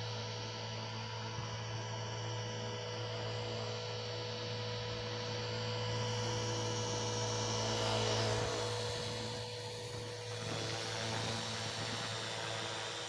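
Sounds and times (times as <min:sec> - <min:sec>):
toy helicopter rotor hum: 0:06.3 - 0:13.0.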